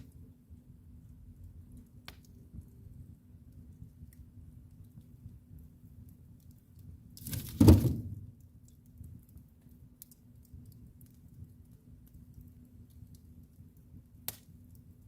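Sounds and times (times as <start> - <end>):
faint fire crackles: 0.0 - 15.0
fire rumbling in fireplace: 0.0 - 15.0.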